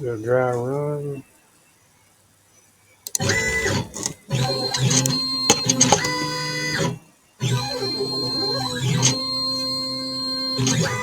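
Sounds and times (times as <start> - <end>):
stepper motors whining: 3.1 - 11.0.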